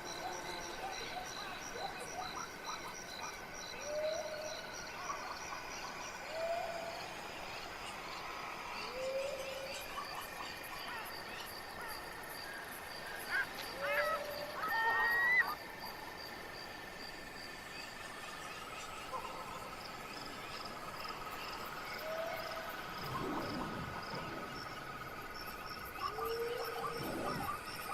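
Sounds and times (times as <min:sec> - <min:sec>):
frogs croaking: 0:00.0 - 0:27.9
insects trilling: 0:00.0 - 0:27.9
whistled animal calls: 0:21.8 - 0:27.9.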